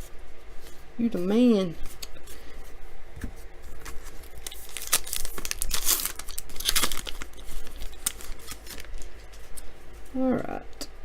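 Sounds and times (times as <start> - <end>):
wrapper tearing and crinkling: 3.8 - 9.2.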